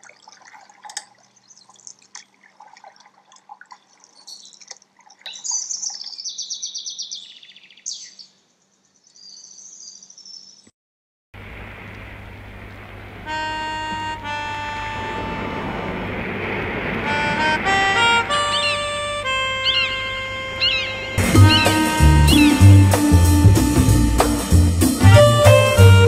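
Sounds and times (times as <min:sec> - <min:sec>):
water drips: 0:00.0 - 0:06.3
small birds chirping and trilling: 0:01.2 - 0:02.5, 0:03.7 - 0:10.7, 0:18.2 - 0:22.6
outdoor noise hiss: 0:11.4 - 0:26.0.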